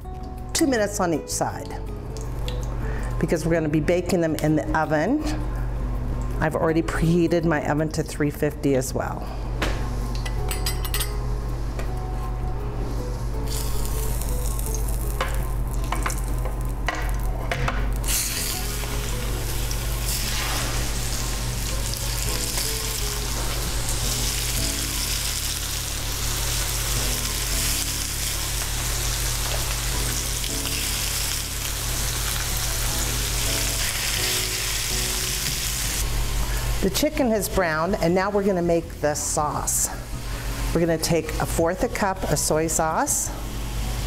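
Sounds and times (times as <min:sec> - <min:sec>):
chicken sizzling in grease: 0:18.0 - 0:37.0.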